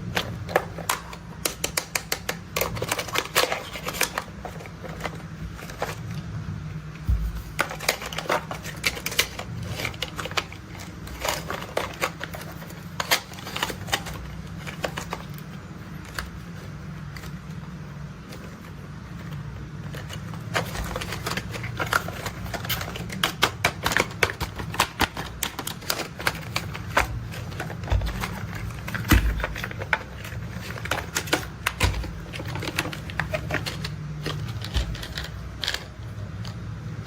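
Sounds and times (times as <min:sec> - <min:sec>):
low steady hum: 0:00.0 - 0:37.0
plastic toy parts clicking: 0:00.1 - 0:06.0, 0:07.6 - 0:16.4, 0:19.9 - 0:36.6.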